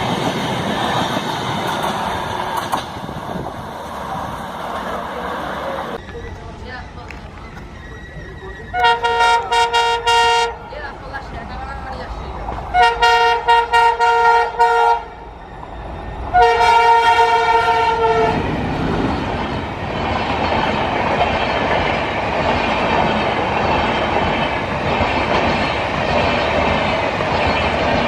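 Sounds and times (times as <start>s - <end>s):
train wheels clattering on rails: 0.0s - 9.7s, 15.5s - 28.0s
train horn toots and blast: 8.7s - 10.7s, 12.7s - 15.2s, 16.3s - 18.5s.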